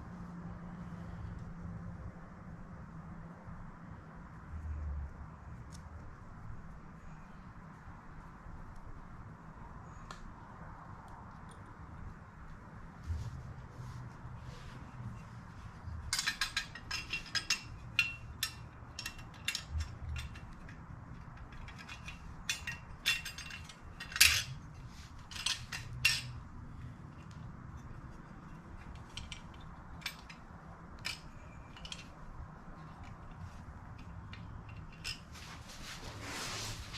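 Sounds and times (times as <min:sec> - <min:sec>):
metal parts and tools clinking: 0:15.0 - 0:35.7.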